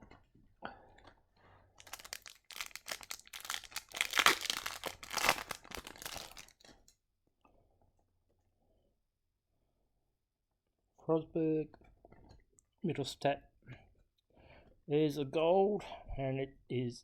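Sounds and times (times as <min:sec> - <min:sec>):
foil wrapper tearing and crinkling: 0:01.8 - 0:06.9.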